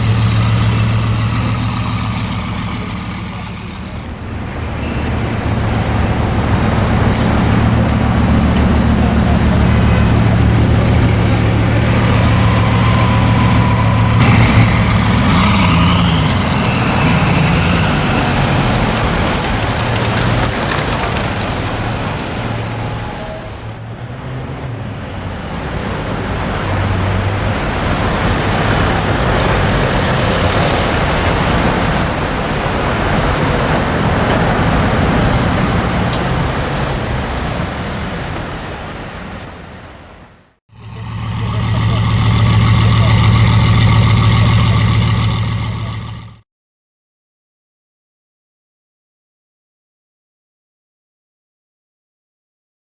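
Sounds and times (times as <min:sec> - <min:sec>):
street traffic: 0:00.0 - 0:46.4
car engine running at low revs: 0:40.8 - 0:46.4.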